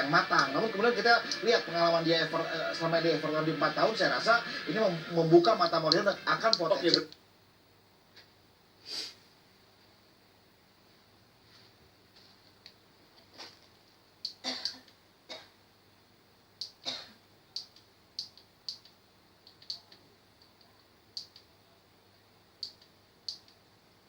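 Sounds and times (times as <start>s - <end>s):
light clicks and ticks: 17.6s - 21.5s, 22.6s - 23.6s.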